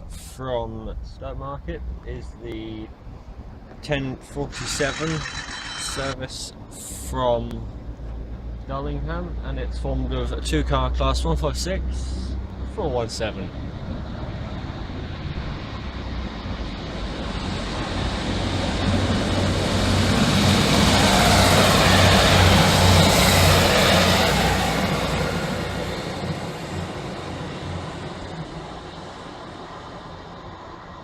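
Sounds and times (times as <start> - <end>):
diesel train engines: 4.2 - 7.0, 16.7 - 31.0
wheels on rails: 4.5 - 6.2.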